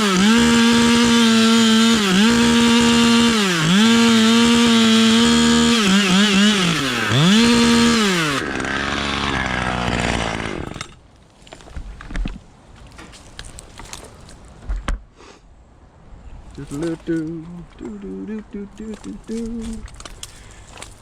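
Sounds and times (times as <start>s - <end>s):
chainsaw cutting wood: 0.0s - 11.0s.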